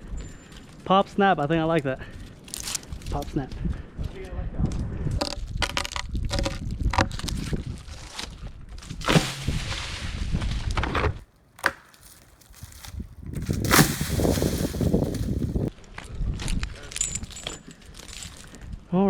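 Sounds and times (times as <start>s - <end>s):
wood cracking and splintering: 11.5s - 15.7s.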